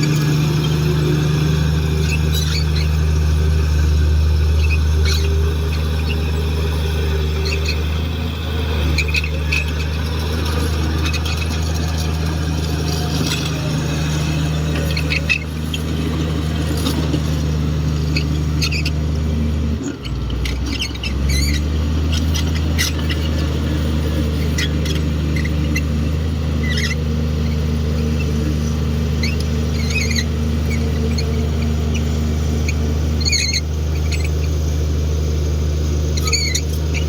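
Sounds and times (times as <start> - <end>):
short high squeaks: 0.0 - 34.8, 36.0 - 37.0
bulldozer diesel engine running: 0.0 - 37.0.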